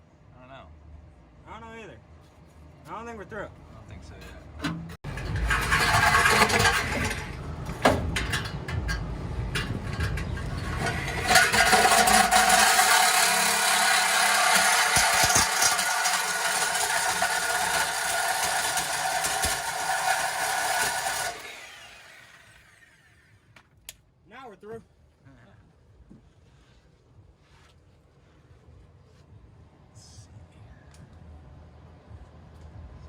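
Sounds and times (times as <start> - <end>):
power tool cutting metal pipe: 5.2 - 7.4, 10.6 - 23.3.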